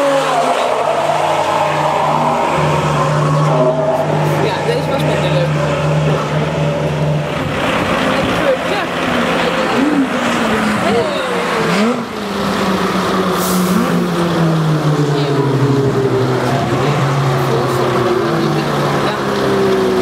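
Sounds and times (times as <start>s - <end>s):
race car engines revving: 0.0s - 20.0s.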